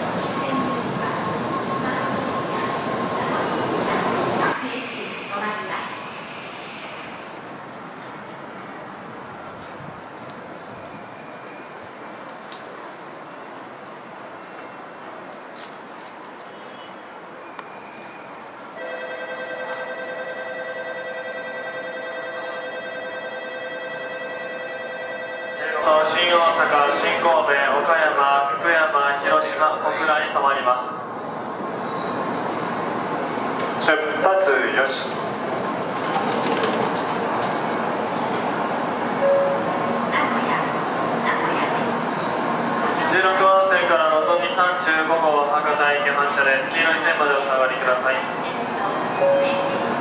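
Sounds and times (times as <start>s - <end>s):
train rushing past: 0.0s - 12.2s, 25.8s - 50.0s
electronic departure bell trill: 18.8s - 25.9s.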